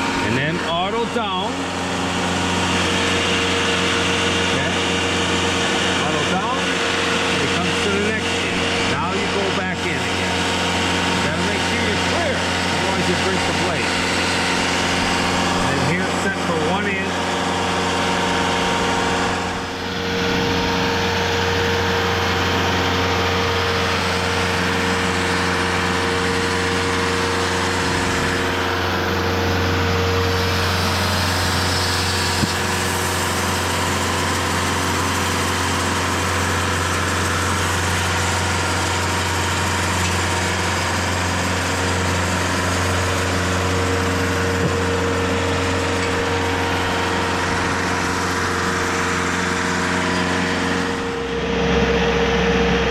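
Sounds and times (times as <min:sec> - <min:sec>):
band sawmill cutting log: 0:00.0 - 0:52.9.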